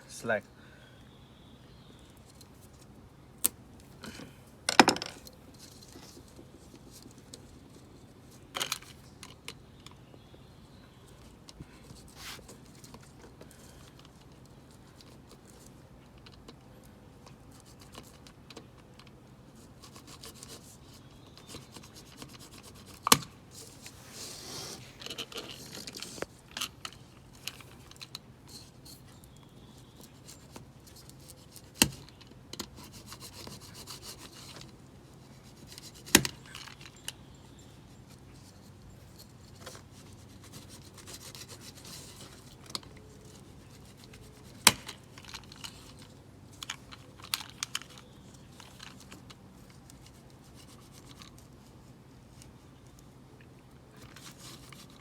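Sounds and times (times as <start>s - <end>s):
rubbing and scraping: 19.6s - 26.4s.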